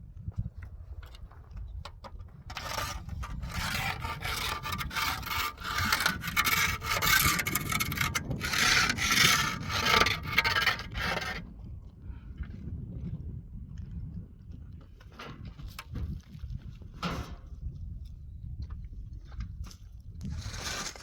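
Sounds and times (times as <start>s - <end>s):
scraping on a hard surface: 2.0s - 11.5s, 20.2s - 21.0s.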